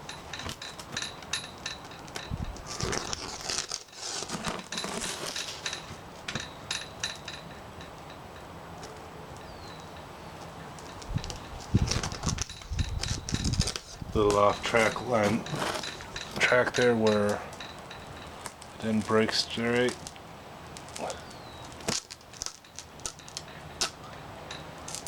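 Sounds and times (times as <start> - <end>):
blade slicing laminated glass: 2.7 - 5.7.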